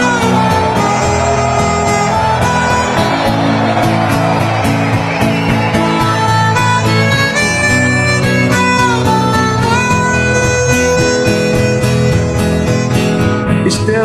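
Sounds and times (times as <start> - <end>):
harmonica melody: 0.0 - 14.0
strummed acoustic guitar: 0.0 - 14.0.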